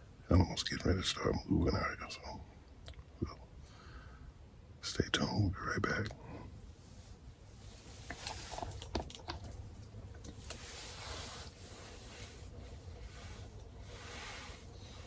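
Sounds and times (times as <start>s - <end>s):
low steady hum: 0.0s - 15.0s
light rustling: 6.8s - 15.0s.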